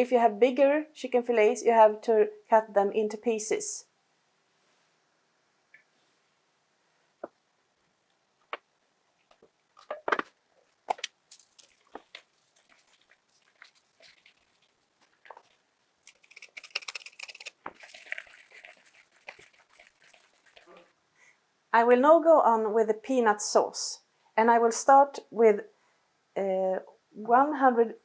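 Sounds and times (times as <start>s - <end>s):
crackly rustling: 7.8s - 20.9s
soft squishing: 7.9s - 21.0s.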